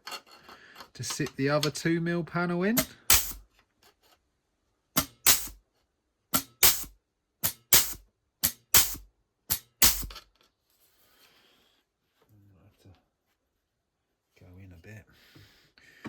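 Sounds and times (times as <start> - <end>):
pneumatic tool strokes on metal sheet: 2.8 - 3.4, 5.0 - 5.6, 6.4 - 10.2.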